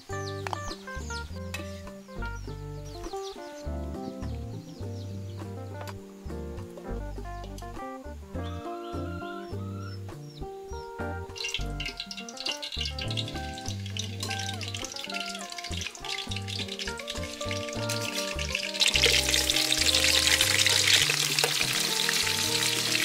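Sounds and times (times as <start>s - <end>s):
ribs sizzling in oil: 11.2s - 23.0s
hot oil crackling in a wok: 11.3s - 23.0s.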